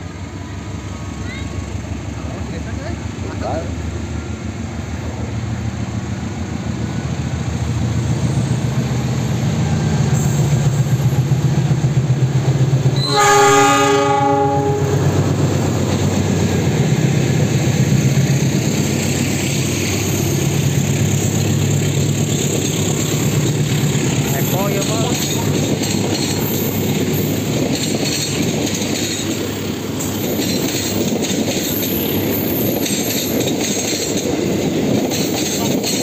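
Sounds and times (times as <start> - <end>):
locomotive engine rumble: 0.0 - 36.0
train horn blast: 12.9 - 15.2
wheels clattering over rail joints: 20.0 - 36.0.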